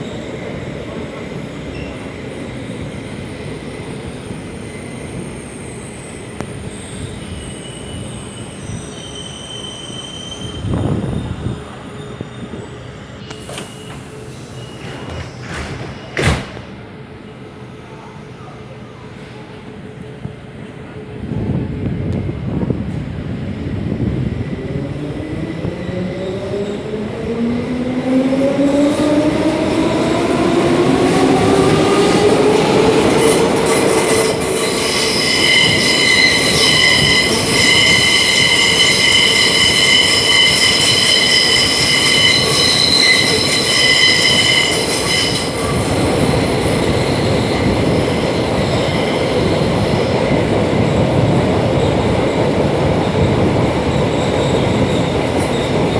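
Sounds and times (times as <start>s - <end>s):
train rumble: 10.6s - 55.9s
wheels screeching: 29.0s - 50.1s.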